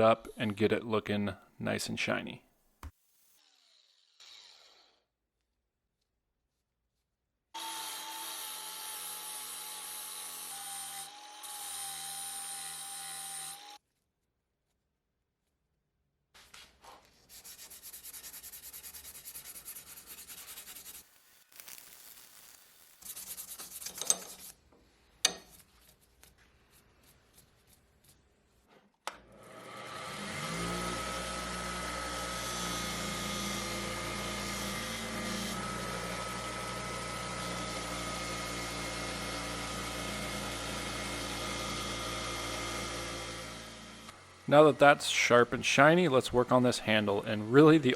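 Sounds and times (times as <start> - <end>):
power sharpening tool running: 7.6 - 13.8, 29.3 - 45.2
file scraping metal: 23.0 - 24.6.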